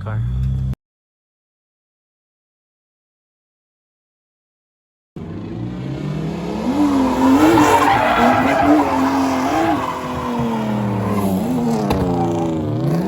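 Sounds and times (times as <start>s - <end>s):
car engine revving: 5.2s - 13.0s
tyres squealing on pavement: 6.7s - 12.7s.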